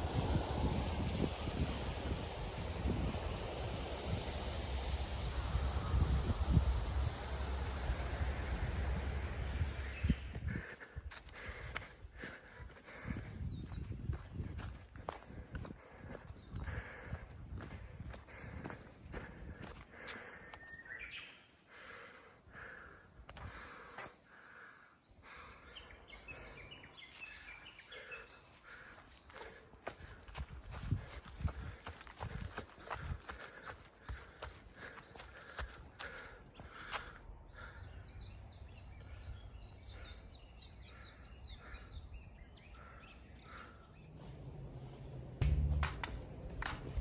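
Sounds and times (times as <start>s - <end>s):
steady outdoor hiss: 0.0s - 13.0s, 43.4s - 47.0s
faint birds chirping: 0.0s - 47.0s.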